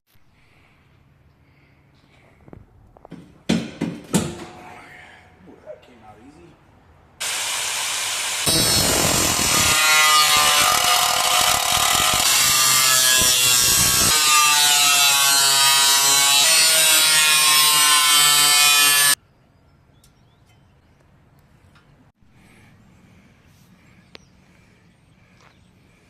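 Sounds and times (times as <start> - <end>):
grinder cutting sheet metal: 7.2 - 19.2.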